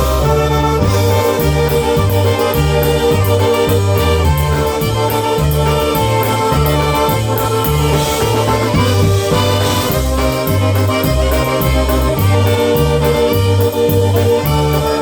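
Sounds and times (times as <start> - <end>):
bouncing bass line: 0.0 - 15.0
polka band playing: 0.0 - 15.0.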